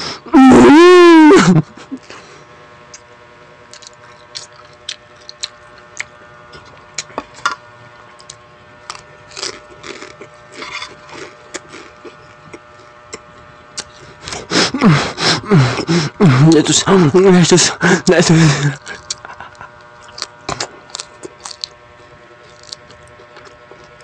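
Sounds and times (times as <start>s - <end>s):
faint steady hum: 0.0s - 24.0s
close-miked chewing: 3.7s - 7.4s, 18.7s - 24.0s.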